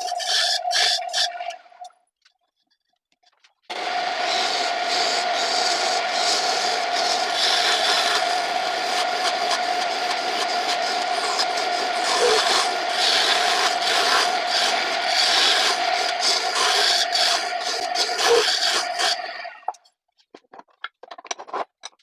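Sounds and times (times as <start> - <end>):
turning tool scraping wood: 3.7 - 19.8
wood lathe humming: 3.7 - 19.8.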